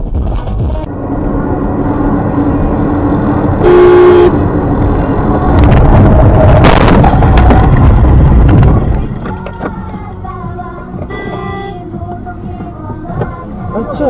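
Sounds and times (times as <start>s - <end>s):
road and engine noise: 0.0s - 14.0s
loud rushing noise: 0.2s - 9.2s
horn blast: 3.5s - 4.6s.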